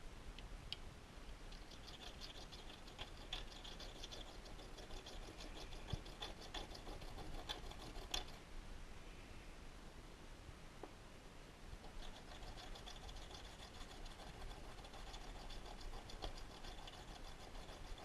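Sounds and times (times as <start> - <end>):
tool bit scratching on sharpening stone: 1.6 - 8.4, 11.8 - 18.0.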